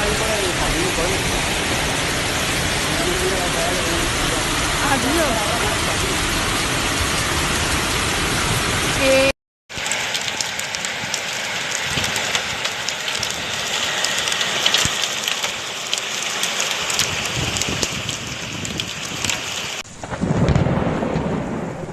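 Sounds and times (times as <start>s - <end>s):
thunder rumble: 0.0s - 9.3s, 17.0s - 21.9s
heavy rain pouring: 0.0s - 21.9s.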